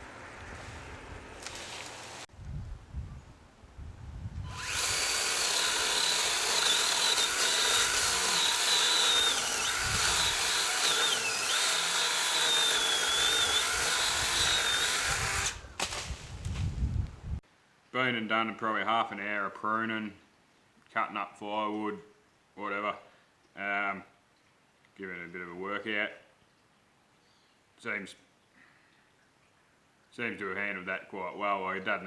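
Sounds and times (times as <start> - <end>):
chainsaw cutting wood: 4.4 - 16.0.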